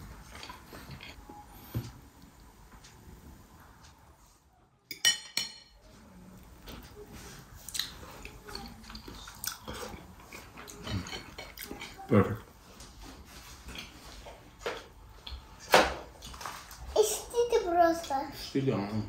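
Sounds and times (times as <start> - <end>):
man chewing: 7.5 - 12.1.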